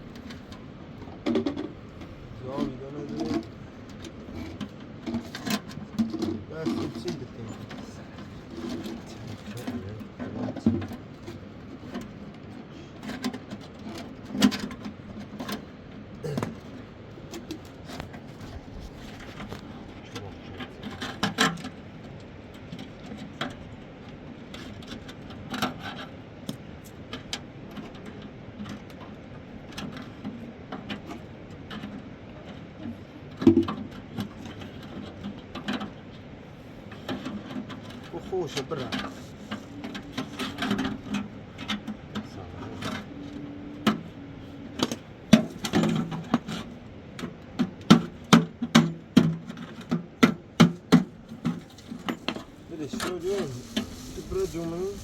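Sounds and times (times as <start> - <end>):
knocks clicks and scraping: 0.1 - 15.7, 36.8 - 55.0.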